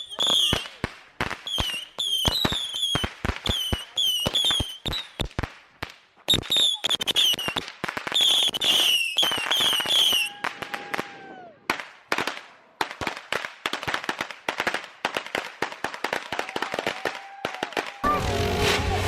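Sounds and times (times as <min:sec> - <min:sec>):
firecracker pops and crackles: 0:00.0 - 0:19.0
high warbling firework whistles: 0:06.3 - 0:07.6, 0:08.2 - 0:11.4
low falling firework whistle: 0:08.2 - 0:11.6.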